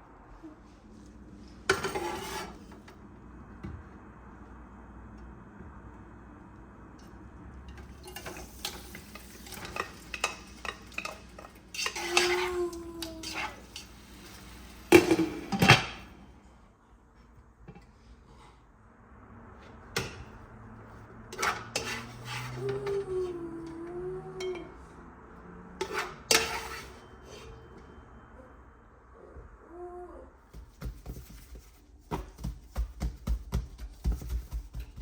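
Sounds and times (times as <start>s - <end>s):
dishes clinking and clattering: 7.7s - 13.9s.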